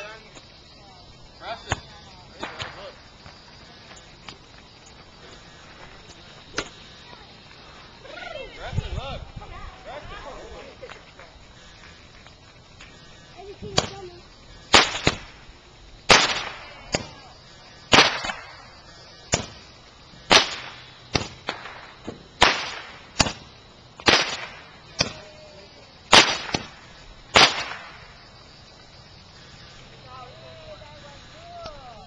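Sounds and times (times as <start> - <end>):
fireworks bangs echoing: 1.4 - 3.9, 13.4 - 28.4.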